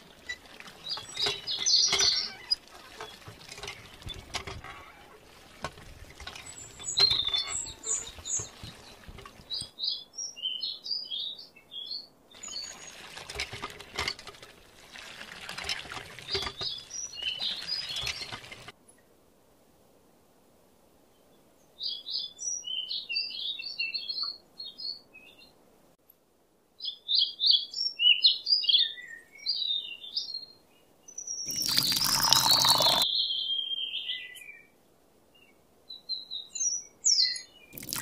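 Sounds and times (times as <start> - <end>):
water splashing into pond: 0.0 - 9.7, 12.4 - 18.8, 31.5 - 33.0, 37.7 - 38.0
high bird chirps: 0.8 - 3.2, 6.5 - 12.8, 31.2 - 34.6.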